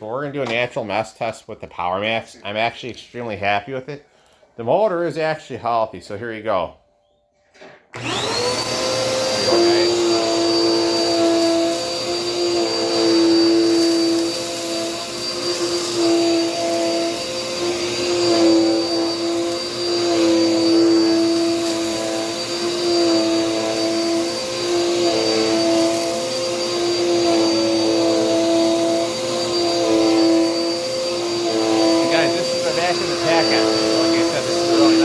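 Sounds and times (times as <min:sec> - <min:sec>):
vacuum cleaner motor whine: 0:07.9 - 0:35.0.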